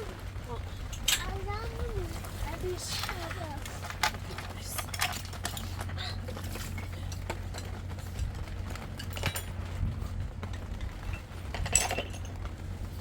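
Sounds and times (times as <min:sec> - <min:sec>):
utensils clinking against dishes: 0:02.8 - 0:08.2, 0:11.1 - 0:12.4.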